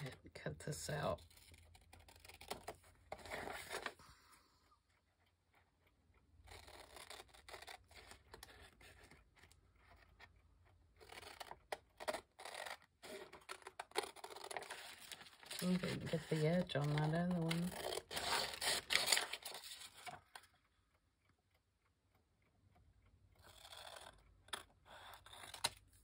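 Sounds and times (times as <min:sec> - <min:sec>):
scissors snipping paper: 0:05.7 - 0:20.2, 0:23.4 - 0:26.0.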